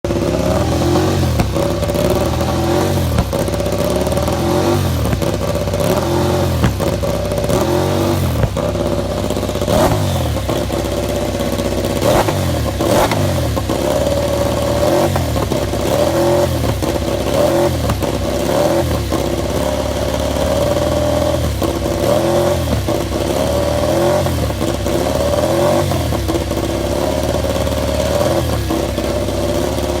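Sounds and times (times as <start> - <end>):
motorcycle engine revving: 0.0 - 30.0
engine sharp cracks: 0.1 - 19.7.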